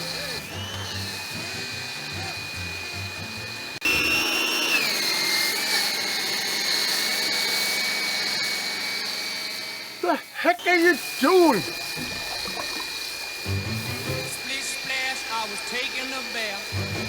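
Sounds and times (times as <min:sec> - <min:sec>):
pressure washer motor whine: 0:00.0 - 0:17.0.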